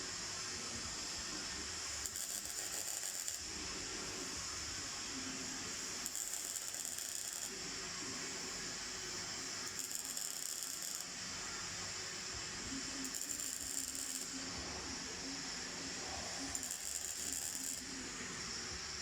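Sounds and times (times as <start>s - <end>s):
sharp bright welding hiss: 0.0s - 19.0s
welder arc crackling: 2.0s - 3.5s, 6.0s - 7.6s, 9.6s - 15.2s, 16.0s - 18.2s.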